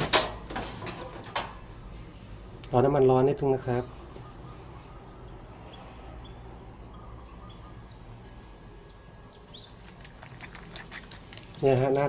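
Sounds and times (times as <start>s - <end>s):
small birds chirping: 1.6s - 12.0s.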